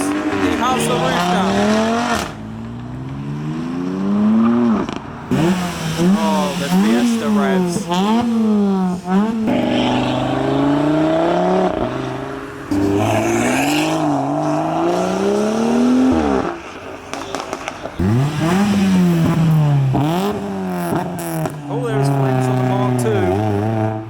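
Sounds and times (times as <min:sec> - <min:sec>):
car driving past: 0:00.0 - 0:24.0
car engine revving: 0:00.0 - 0:24.0.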